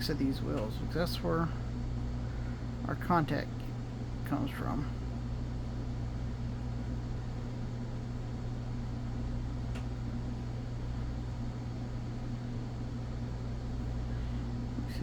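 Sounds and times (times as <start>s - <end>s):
low hum: 0.0s - 15.0s
faint click: 9.7s - 9.9s.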